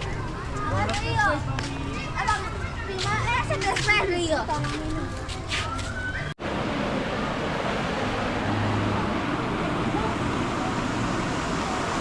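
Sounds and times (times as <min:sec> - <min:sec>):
running water rushing: 0:06.4 - 0:12.0.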